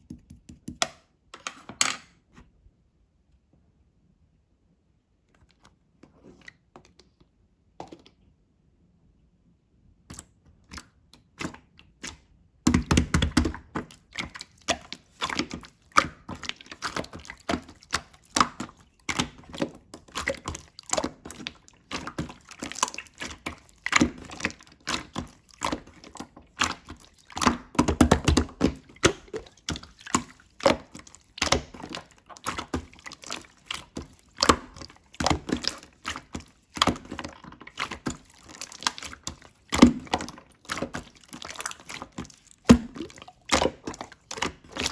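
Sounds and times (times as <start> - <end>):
slime squelches: 10.0 - 44.9.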